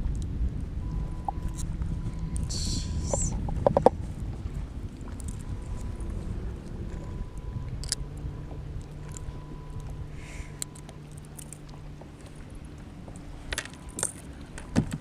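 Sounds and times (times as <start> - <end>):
steady low hum: 0.0 - 15.0
light clicks and metallic clinks: 8.8 - 14.7.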